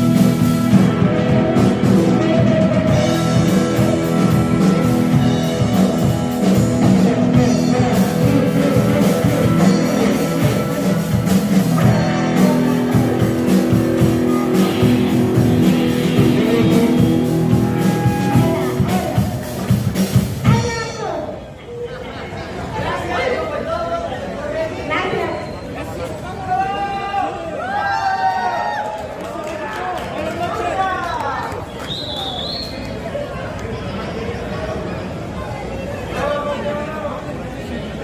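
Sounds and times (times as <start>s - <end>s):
electric guitar: 0.0s - 20.9s
drums: 0.0s - 21.5s.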